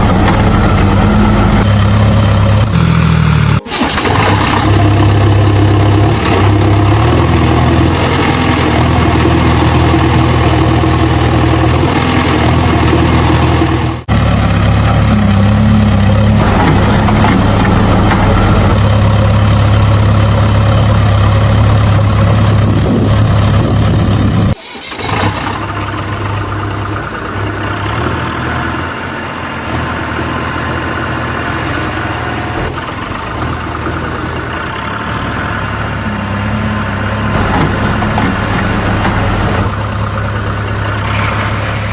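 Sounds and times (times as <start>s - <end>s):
engine running steadily: 12.8s - 28.8s.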